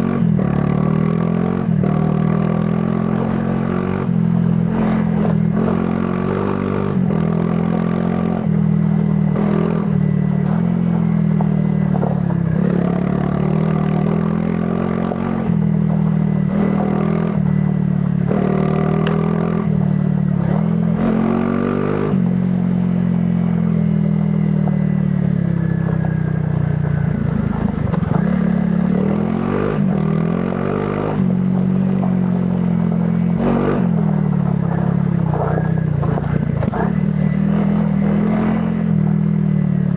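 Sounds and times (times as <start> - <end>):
motorcycle engine revving: 0.0 - 39.9
knocks and clatter from rough ground: 11.3 - 12.5, 26.6 - 28.3, 34.0 - 37.0.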